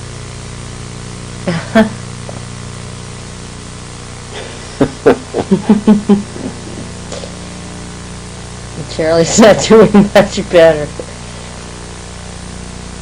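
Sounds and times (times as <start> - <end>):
recording hiss and hum: 0.0 - 13.0
person's voice in short bursts: 8.8 - 11.2.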